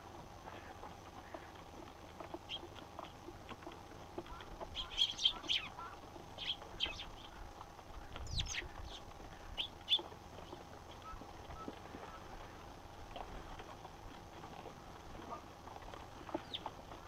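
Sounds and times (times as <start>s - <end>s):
sparrows chirping: 2.3s - 3.1s, 4.2s - 12.4s, 16.2s - 16.7s.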